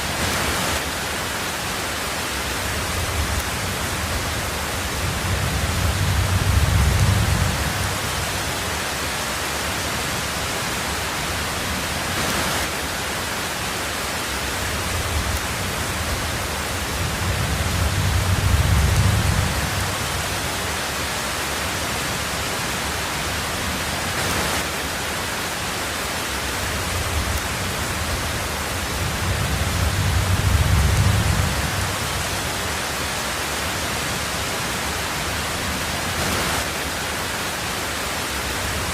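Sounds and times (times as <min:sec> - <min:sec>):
heavy rain hiss: 0:00.0 - 0:38.9
low thunder rumbles: 0:02.8 - 0:08.6, 0:14.8 - 0:20.7, 0:26.8 - 0:32.8.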